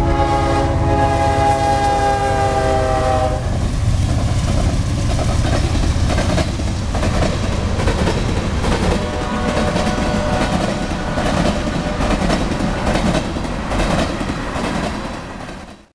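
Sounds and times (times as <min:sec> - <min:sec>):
locomotive air horn: 0:00.0 - 0:03.6, 0:08.8 - 0:13.1
continuous train rumble: 0:00.0 - 0:15.9
wheels clickety-clack over rail joint: 0:03.5 - 0:15.9.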